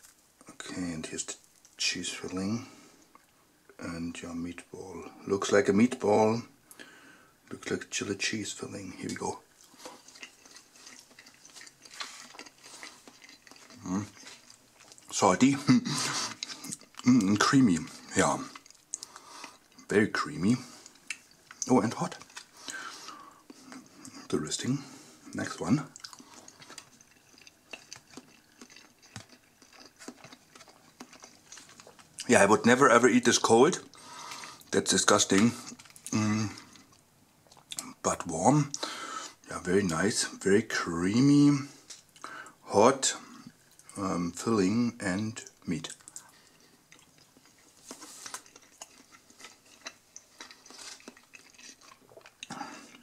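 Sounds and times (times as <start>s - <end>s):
person chewing wetly: 9.5s - 24.3s, 25.2s - 32.3s, 33.4s - 38.0s, 43.3s - 44.0s, 45.4s - 53.0s
mouth chewing clicks: 25.9s - 32.3s, 45.9s - 53.0s.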